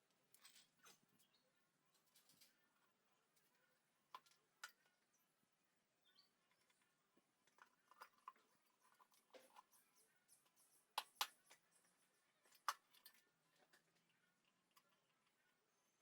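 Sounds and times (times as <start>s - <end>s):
faint clicks and taps: 6.4s - 15.7s.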